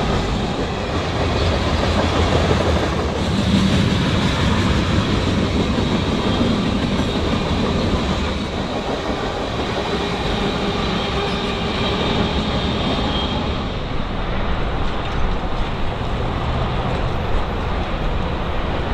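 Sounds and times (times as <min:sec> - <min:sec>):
train wheels clacking over rail joints: 0:00.0 - 0:13.6
faint high wheel squeal: 0:10.2 - 0:13.8.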